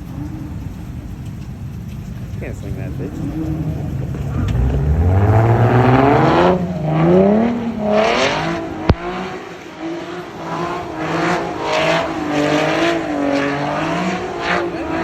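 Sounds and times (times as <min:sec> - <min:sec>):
car engine revving: 0:00.0 - 0:15.0
tyres spinning: 0:00.0 - 0:15.0
sharp pop: 0:08.8 - 0:09.2.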